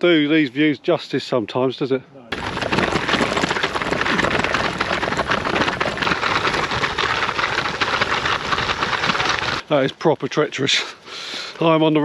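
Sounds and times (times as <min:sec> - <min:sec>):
bike rattling over bumps: 0:02.3 - 0:09.7.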